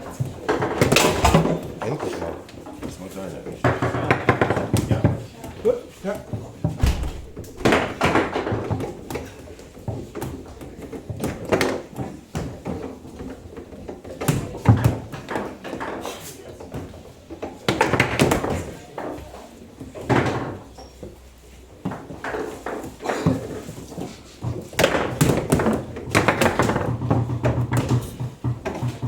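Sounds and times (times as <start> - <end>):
foosball ball and rods knocking: 6.8 - 9.0.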